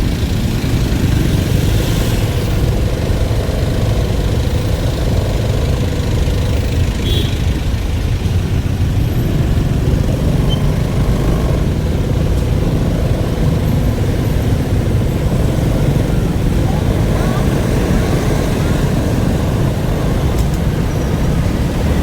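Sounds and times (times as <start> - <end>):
vehicle engine running steadily: 0.0 - 22.0.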